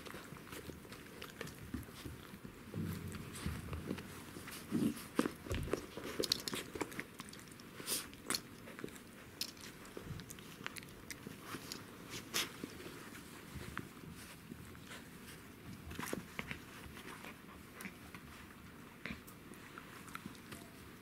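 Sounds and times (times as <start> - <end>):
crunchy chewing: 0.0 - 2.7, 3.4 - 13.2
puppies scratching and rustling: 0.0 - 21.0.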